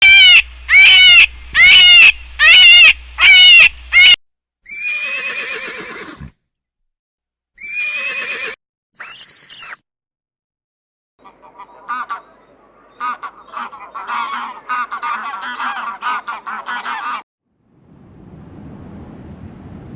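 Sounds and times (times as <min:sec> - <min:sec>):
farm animal calls: 0:11.2 - 0:17.2.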